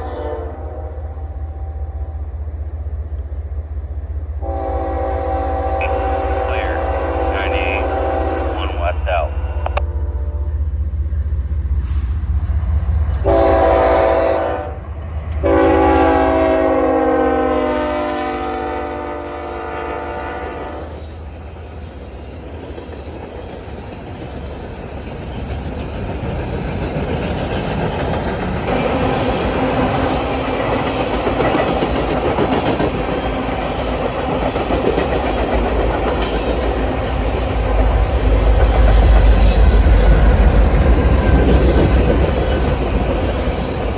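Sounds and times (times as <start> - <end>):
locomotive horn blasts: 0.0 - 1.7, 4.4 - 10.5, 13.2 - 14.8, 15.4 - 21.0
train low rumble: 0.0 - 43.9
train wheels clattering on rails: 20.9 - 43.9.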